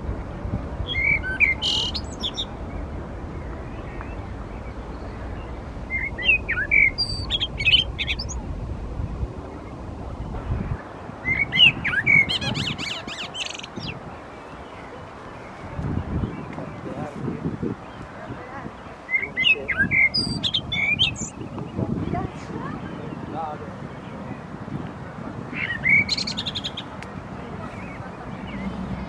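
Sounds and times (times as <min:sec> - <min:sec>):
songbird whistling and trilling: 0:00.8 - 0:02.8, 0:03.4 - 0:08.4, 0:11.2 - 0:14.0, 0:19.1 - 0:21.4, 0:25.6 - 0:26.9.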